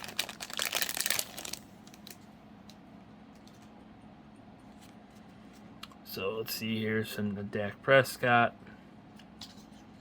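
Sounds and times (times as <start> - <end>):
plastic packaging rustling: 0.0 - 2.2.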